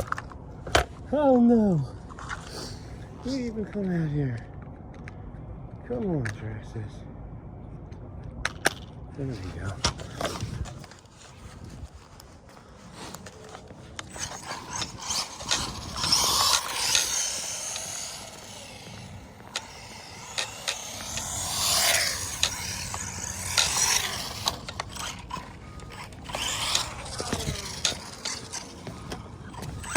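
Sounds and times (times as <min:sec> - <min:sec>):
tyres scraping on concrete: 0:09.4 - 0:29.9
electric motor whining: 0:13.1 - 0:29.9.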